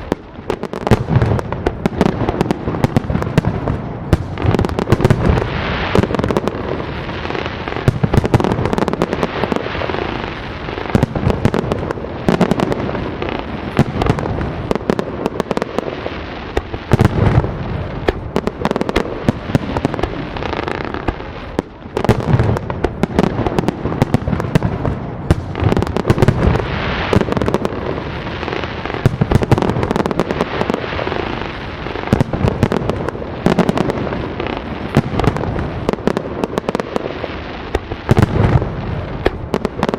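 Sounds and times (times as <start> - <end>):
fireworks bangs and crackle: 0.0 - 39.9.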